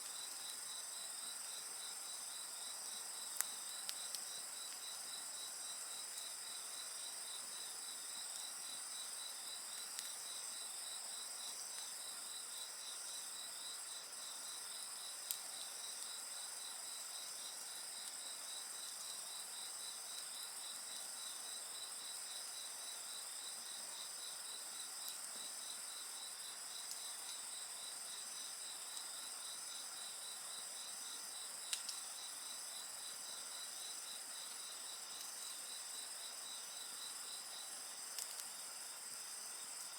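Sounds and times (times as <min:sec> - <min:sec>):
crickets chirping: 0:00.0 - 0:39.9
campfire pops: 0:03.3 - 0:04.8, 0:31.7 - 0:32.0, 0:38.2 - 0:38.5.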